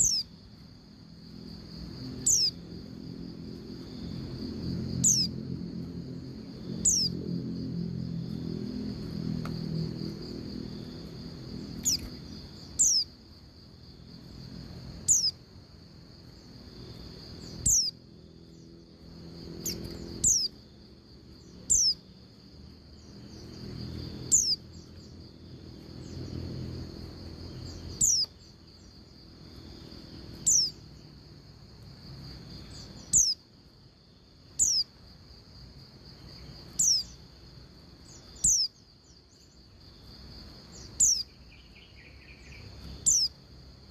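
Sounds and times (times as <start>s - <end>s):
bird giving high downward calls: 0.0s - 0.3s, 2.2s - 2.6s, 5.0s - 5.4s, 6.8s - 7.2s, 11.8s - 13.1s, 15.1s - 15.4s, 17.4s - 18.0s, 19.6s - 20.6s, 21.6s - 22.0s, 24.2s - 25.0s, 27.8s - 28.4s, 30.4s - 30.8s, 33.0s - 33.4s, 34.6s - 34.9s, 36.8s - 37.2s, 38.4s - 38.7s, 40.9s - 43.3s
high insect drone: 0.0s - 43.9s.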